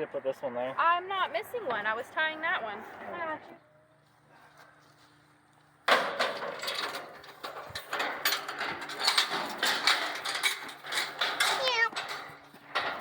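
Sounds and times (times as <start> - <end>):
clattering and rattling: 5.9 - 13.0.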